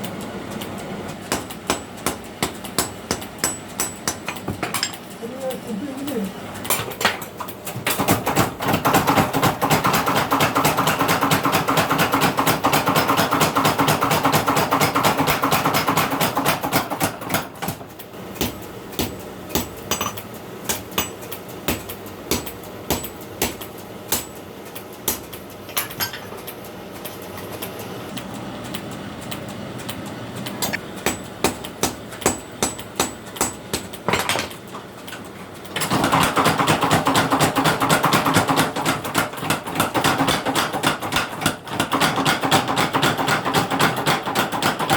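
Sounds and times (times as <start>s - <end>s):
hammer striking steel on anvil: 1.3s - 5.0s, 18.4s - 24.4s, 30.6s - 34.2s.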